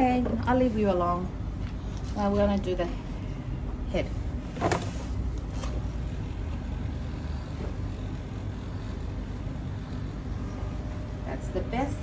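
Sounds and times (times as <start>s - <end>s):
electric clipper humming: 5.4s - 12.0s.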